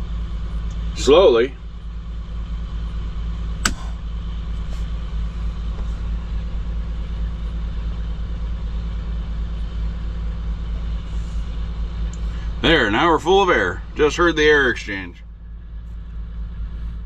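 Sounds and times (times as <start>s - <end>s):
diesel truck engine idling: 0.0s - 17.0s
air compressor running: 1.7s - 14.2s
sharp click: 3.6s - 3.9s.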